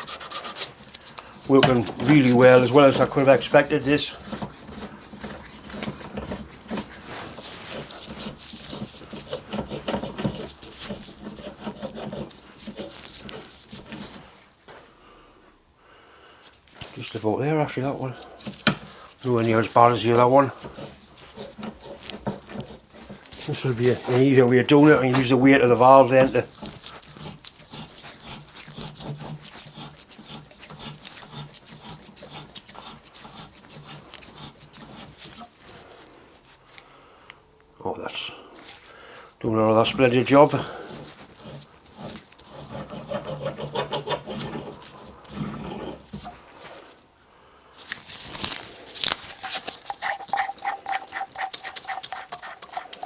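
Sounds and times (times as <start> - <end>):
metal grinding and scraping: 0.0 - 13.5, 19.2 - 35.6, 39.8 - 46.5, 49.3 - 53.0.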